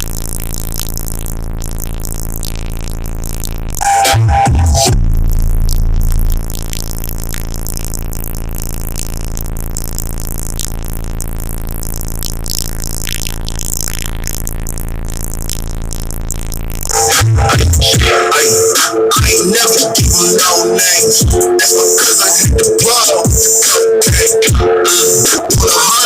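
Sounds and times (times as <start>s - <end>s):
synth music through car speakers: 0.0s - 26.0s
heavy bass hit: 4.2s - 7.8s.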